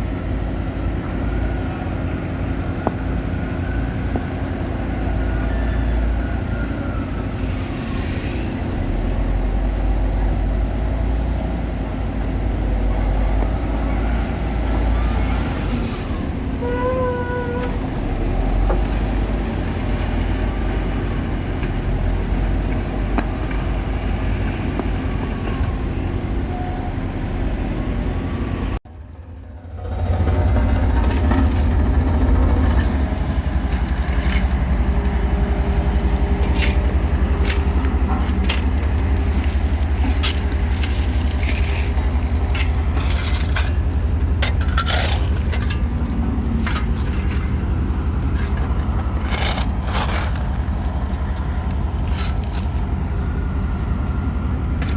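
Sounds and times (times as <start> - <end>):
diesel engine running: 0.0 - 54.9
scrapes and clanks: 33.7 - 53.0.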